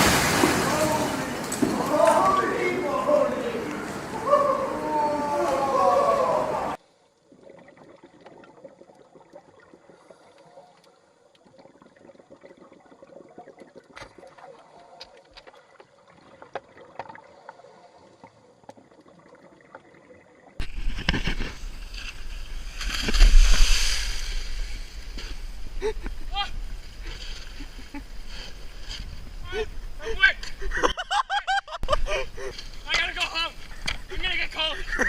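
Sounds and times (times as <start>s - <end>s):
loud rushing water: 0.0s - 6.8s
quiet water noise: 0.0s - 35.0s
small clicks and splashes: 7.0s - 24.0s.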